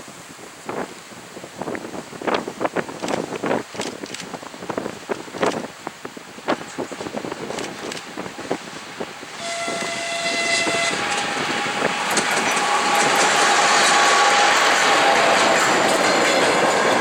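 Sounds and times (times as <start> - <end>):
train running noise: 0.6 - 17.0
locomotive horn blast: 9.3 - 17.0.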